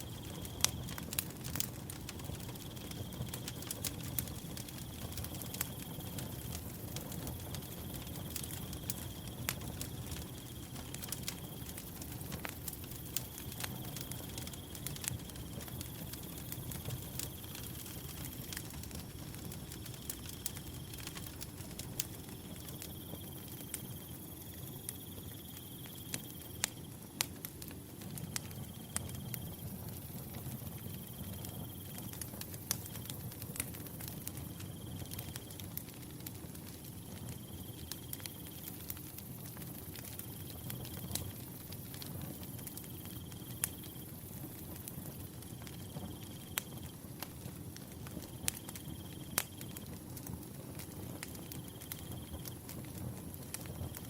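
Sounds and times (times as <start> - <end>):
wood fire crackling and popping: 0.0 - 54.0
cricket chirping: 7.1 - 12.1, 51.4 - 52.6.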